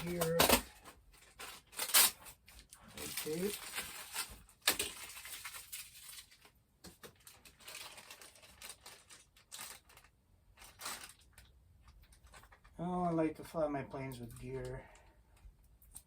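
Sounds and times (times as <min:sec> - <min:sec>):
packaging rustling and crinkling: 0:00.0 - 0:12.8.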